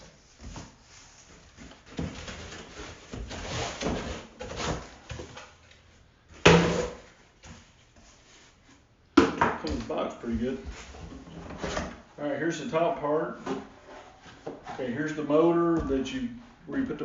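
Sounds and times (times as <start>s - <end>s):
cardboard scraping and rustling: 0.2s - 5.4s.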